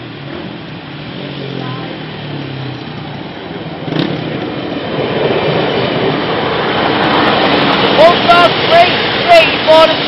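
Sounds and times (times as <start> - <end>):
diesel train passing: 0.0 - 10.0.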